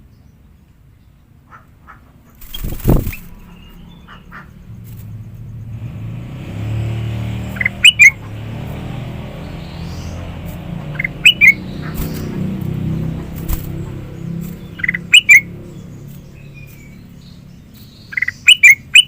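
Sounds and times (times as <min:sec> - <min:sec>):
bulbul calling: 0:01.5 - 0:04.8, 0:07.5 - 0:08.4, 0:09.4 - 0:19.0
low engine hum: 0:02.2 - 0:19.0.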